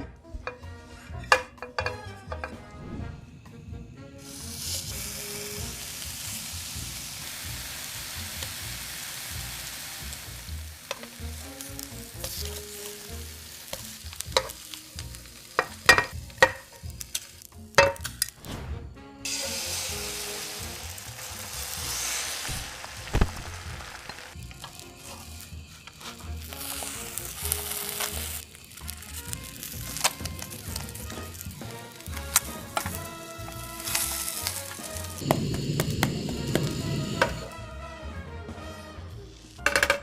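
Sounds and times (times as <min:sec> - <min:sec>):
utensil clinking in pan: 0:01.3 - 0:02.6, 0:13.7 - 0:18.3
food sizzling in oil: 0:04.2 - 0:18.4, 0:19.2 - 0:37.8.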